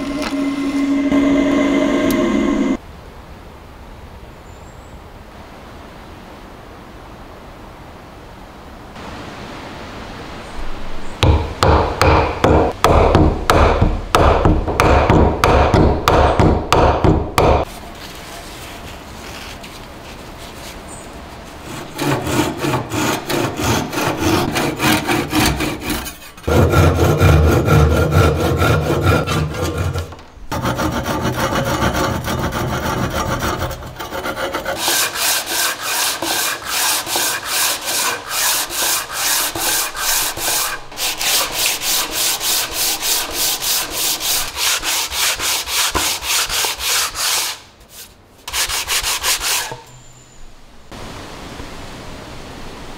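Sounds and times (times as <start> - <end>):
hand tool rubbing wood: 0.0 - 2.8, 21.6 - 49.9.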